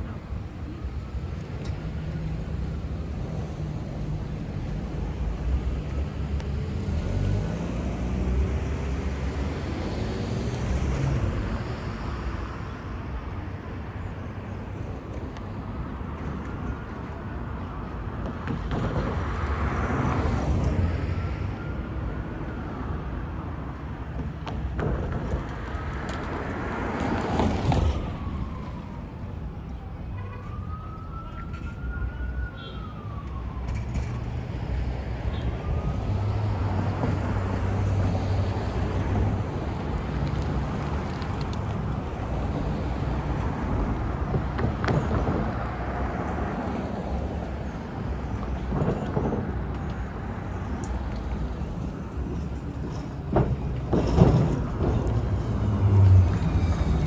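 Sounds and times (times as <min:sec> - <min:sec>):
road traffic passing: 0:00.0 - 0:57.0
emergency siren wailing: 0:20.1 - 0:23.0, 0:27.0 - 0:50.0.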